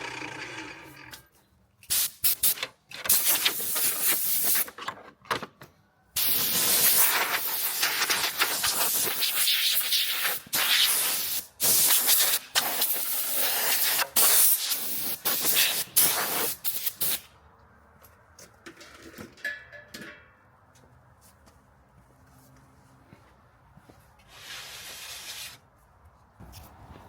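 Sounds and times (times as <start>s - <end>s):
hissing bursts: 1.8s - 4.6s, 6.2s - 17.3s, 24.3s - 25.6s.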